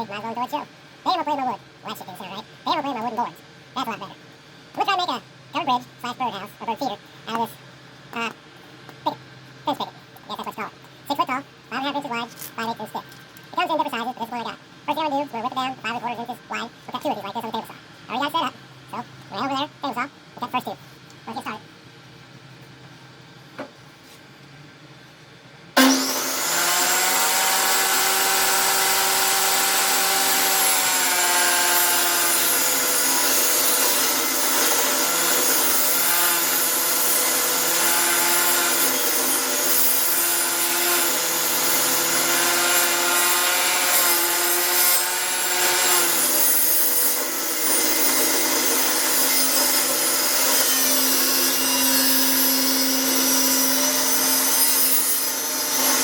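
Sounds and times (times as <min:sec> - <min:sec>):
table saw ripping wood: 0:25.8 - 0:56.0.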